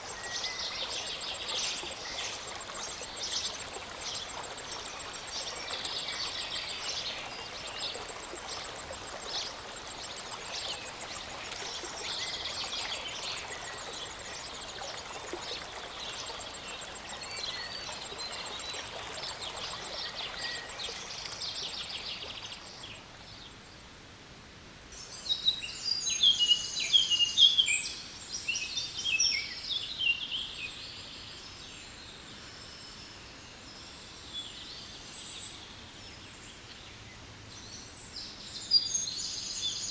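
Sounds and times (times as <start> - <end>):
mountain stream rushing: 0.0 - 23.0.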